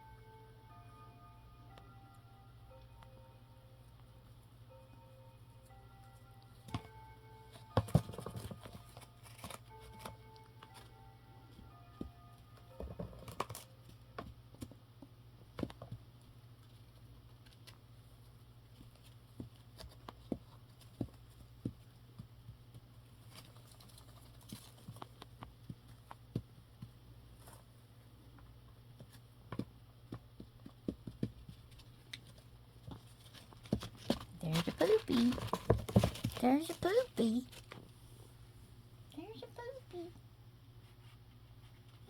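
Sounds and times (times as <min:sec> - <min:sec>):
low steady hum: 0:00.0 - 0:42.0
parrot tapping and scratching: 0:30.4 - 0:37.8.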